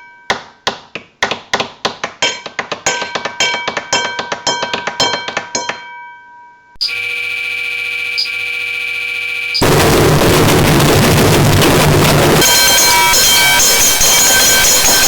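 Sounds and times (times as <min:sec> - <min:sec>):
electronic buzzing drone: 0:06.8 - 0:15.0.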